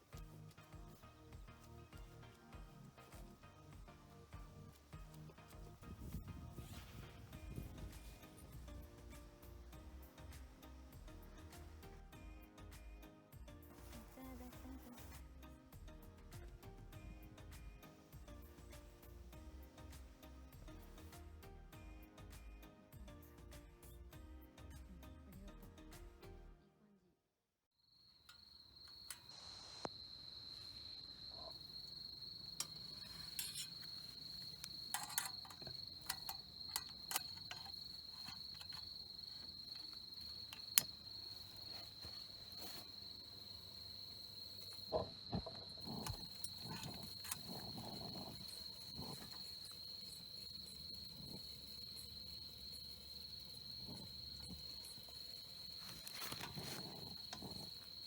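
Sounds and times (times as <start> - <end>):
crickets trilling: 27.9 - 58.0.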